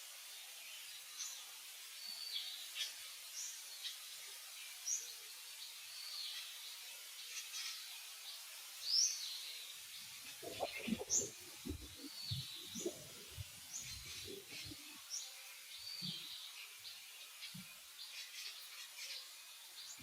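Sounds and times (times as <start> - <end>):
faint outdoor hiss: 0.0 - 20.0
birds chirping: 8.9 - 20.0.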